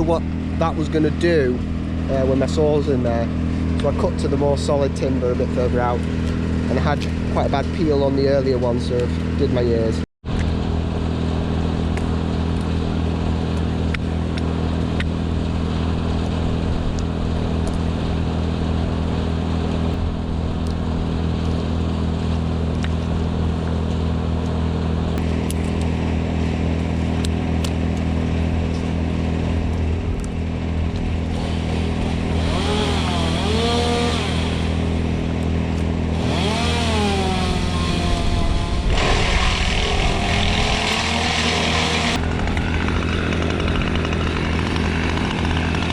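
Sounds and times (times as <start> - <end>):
small petrol engine running: 31.2 - 35.4, 36.0 - 45.9.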